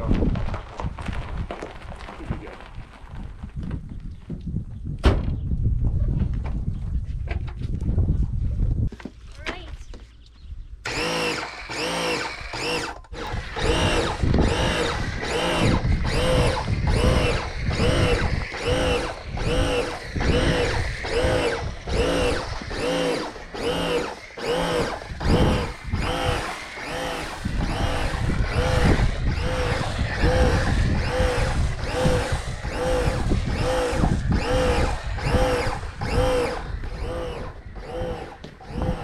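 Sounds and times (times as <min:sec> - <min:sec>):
pressure washer spraying: 0:10.9 - 0:39.0.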